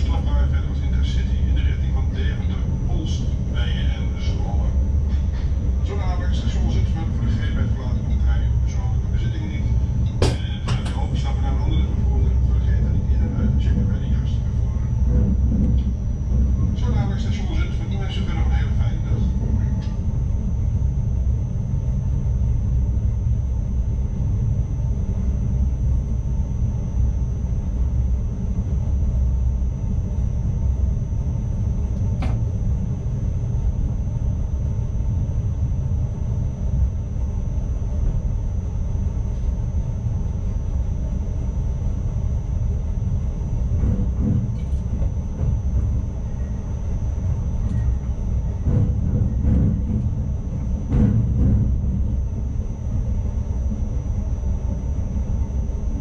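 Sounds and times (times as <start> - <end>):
train running on track: 0.0 - 20.3, 42.5 - 56.0
faint high whine: 0.0 - 56.0.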